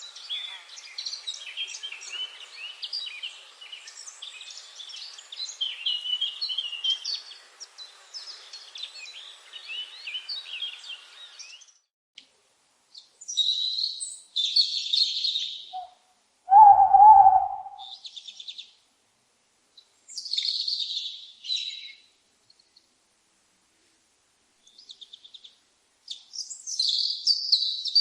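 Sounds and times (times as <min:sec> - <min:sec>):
small birds chirping: 0:00.0 - 0:12.3, 0:12.9 - 0:18.9, 0:19.7 - 0:23.0, 0:24.6 - 0:28.0
raspy bird calls: 0:14.5 - 0:18.2
loud low call: 0:16.5 - 0:17.9.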